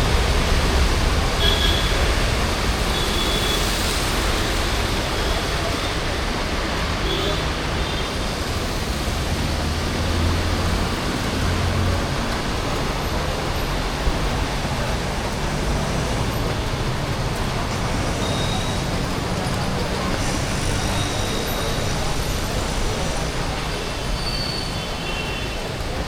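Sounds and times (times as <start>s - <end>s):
rain hissing: 0.0s - 26.0s
vehicles passing: 0.0s - 26.0s
wet road noise: 0.0s - 26.0s.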